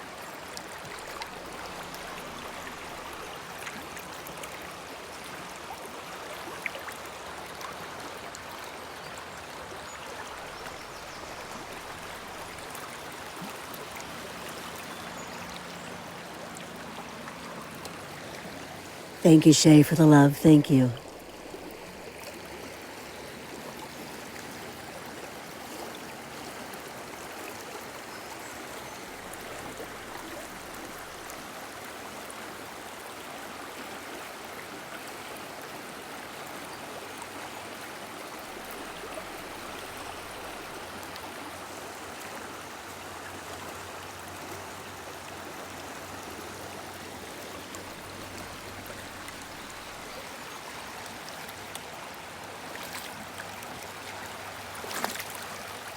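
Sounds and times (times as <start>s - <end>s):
river water flowing: 0.0s - 55.9s.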